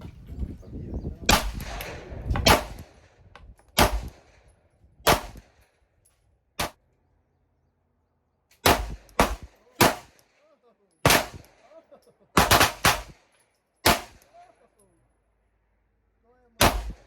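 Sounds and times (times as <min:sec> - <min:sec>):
pistol shots: 0:01.3 - 0:03.0, 0:03.8 - 0:04.4, 0:05.1 - 0:05.5, 0:08.6 - 0:10.2, 0:11.0 - 0:11.6, 0:12.4 - 0:14.3, 0:16.6 - 0:17.0.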